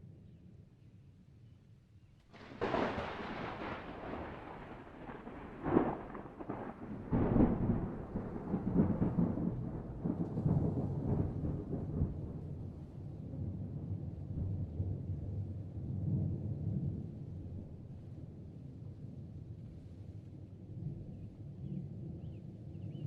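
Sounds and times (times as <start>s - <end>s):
thunder cracks: 2.3s - 12.5s
rolling thunder rumble: 2.3s - 19.0s.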